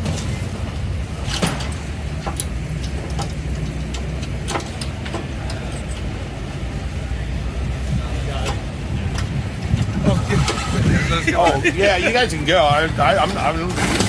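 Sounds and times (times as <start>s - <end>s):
engine running at low rumble: 0.0s - 14.0s
sharp clicks and knocks: 1.2s - 6.1s.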